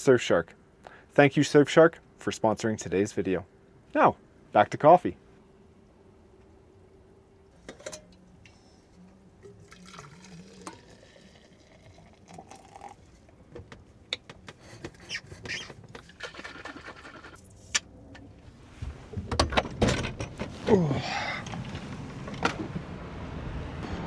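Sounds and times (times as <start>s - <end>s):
liquid pouring and trickling: 9.4s - 13.3s.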